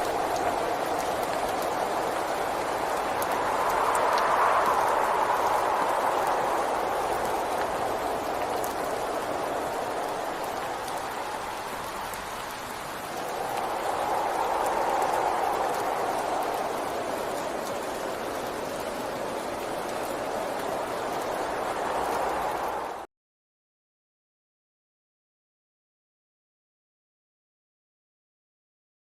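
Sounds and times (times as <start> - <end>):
raindrop ticks: 0.0 - 23.0
steady rain hiss: 0.0 - 23.1.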